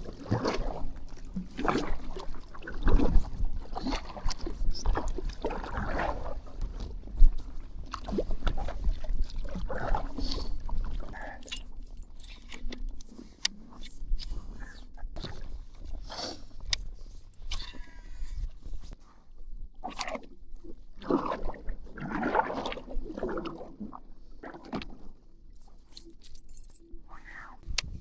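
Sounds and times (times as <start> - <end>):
water moving around hull: 0.0 - 12.4, 20.0 - 26.6
fishing gear knocking and rustling: 11.2 - 13.2, 13.8 - 14.6, 16.8 - 17.9, 25.6 - 26.8.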